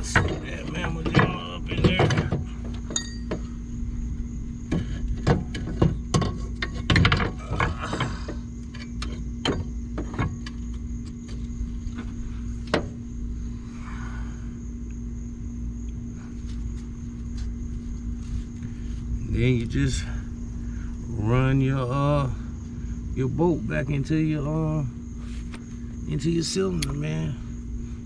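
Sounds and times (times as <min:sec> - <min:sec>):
metallic clinks and knocks: 0:00.0 - 0:03.5
steady low hum: 0:00.0 - 0:28.0.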